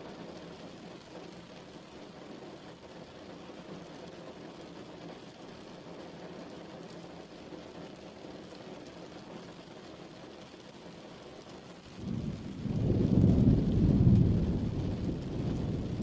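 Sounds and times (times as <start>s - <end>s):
steady rain: 0.0s - 16.0s
low thunder rumble: 11.9s - 16.0s.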